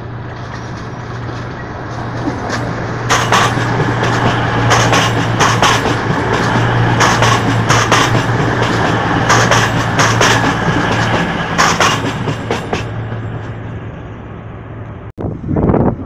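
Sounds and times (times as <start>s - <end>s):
wheels clicking over rail joints: 0.0s - 13.6s
diesel train engine hum: 0.0s - 16.0s
wind on microphone: 15.2s - 16.0s.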